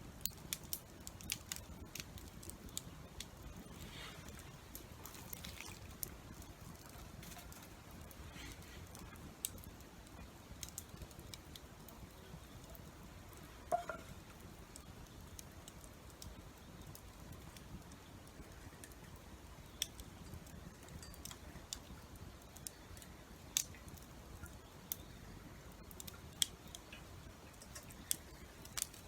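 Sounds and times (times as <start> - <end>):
campfire crackling: 0.0 - 29.0
faint rain patter: 0.0 - 29.0
knock with pitched ring: 13.7 - 14.0.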